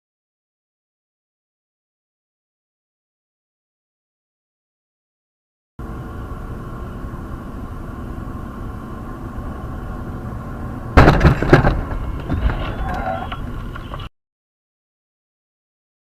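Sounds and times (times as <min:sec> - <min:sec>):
road and engine noise: 0:05.8 - 0:14.1
car crash: 0:10.9 - 0:13.5
debris clattering: 0:11.0 - 0:13.1.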